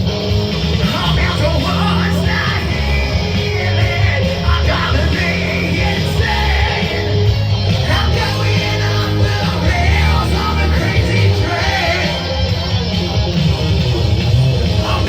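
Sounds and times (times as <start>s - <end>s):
loud rock music: 0.0s - 15.0s
singer shouting: 0.8s - 7.1s, 7.9s - 12.4s.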